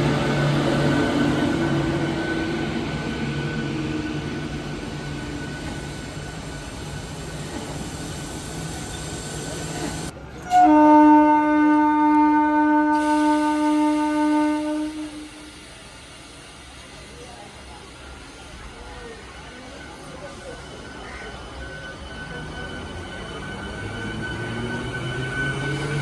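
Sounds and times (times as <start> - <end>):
train running hum: 0.0 - 26.0
train horn blast: 10.4 - 15.6.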